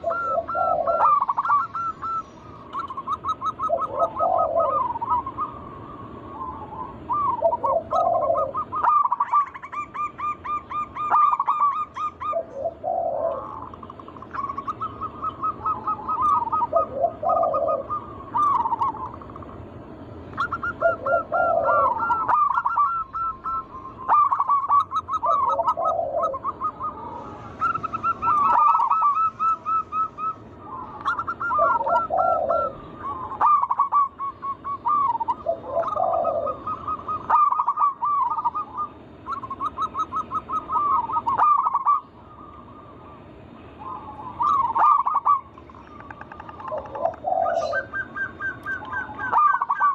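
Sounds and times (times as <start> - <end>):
doves warbling coo song: 0.0 - 49.9.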